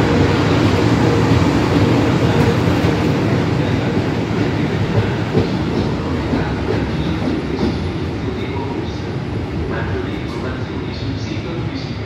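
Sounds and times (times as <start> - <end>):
locomotive wheels rumbling on rail: 0.0 - 12.0.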